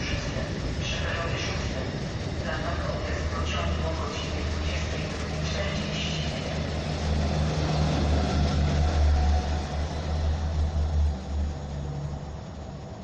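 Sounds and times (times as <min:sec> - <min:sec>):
passenger train rumbling on track: 0:00.0 - 0:13.0.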